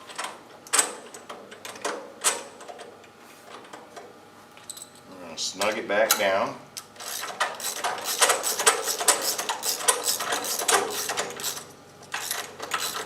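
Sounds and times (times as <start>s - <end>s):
ratchet wrench clicking: 7.0s - 13.0s.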